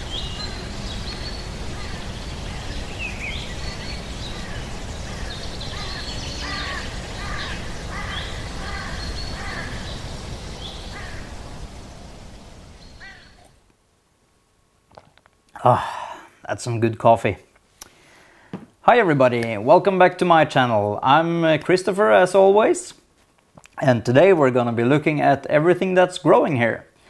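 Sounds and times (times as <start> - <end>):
birds chirping: 0.0 - 13.7
steady rushing noise: 0.0 - 13.7.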